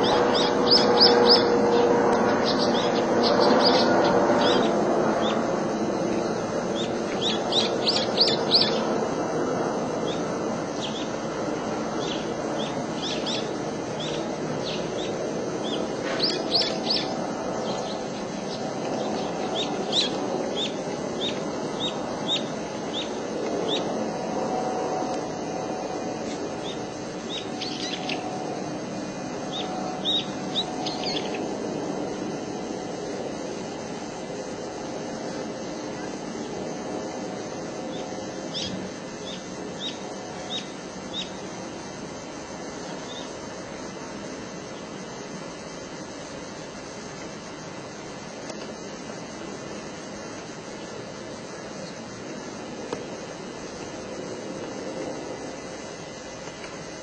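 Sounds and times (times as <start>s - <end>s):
low rushing background noise: 0.0s - 57.0s
songbird chirping: 6.1s - 8.9s, 12.0s - 23.9s, 26.6s - 28.6s, 37.9s - 41.5s.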